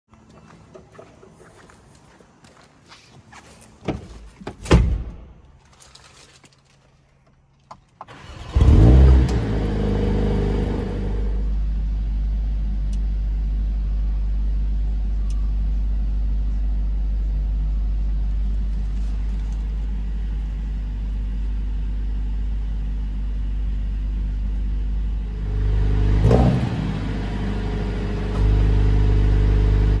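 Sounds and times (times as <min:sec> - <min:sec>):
car engine starting and idling: 0:07.6 - 0:30.0.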